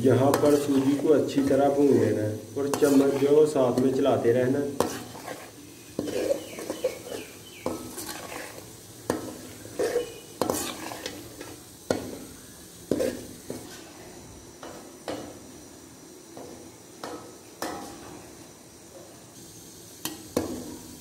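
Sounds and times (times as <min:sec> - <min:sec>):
metal spoon scraping a pan: 0:00.0 - 0:15.4
faint sizzle: 0:00.0 - 0:21.0.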